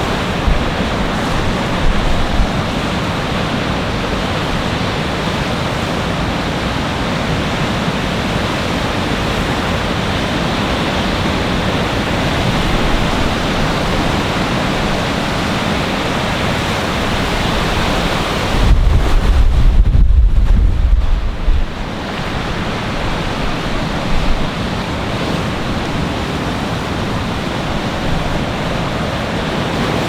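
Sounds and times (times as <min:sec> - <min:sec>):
wind buffeting microphone: 0:00.0 - 0:04.2, 0:10.5 - 0:30.0
strong wind: 0:00.0 - 0:30.0
surf roaring: 0:00.0 - 0:30.0.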